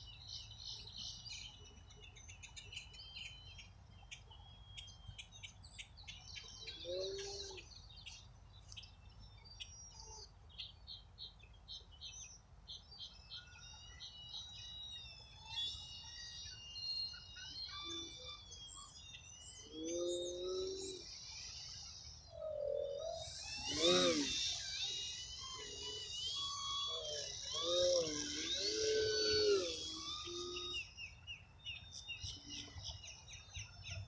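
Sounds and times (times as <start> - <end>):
songbirds singing and chirping: 0.0 - 34.0.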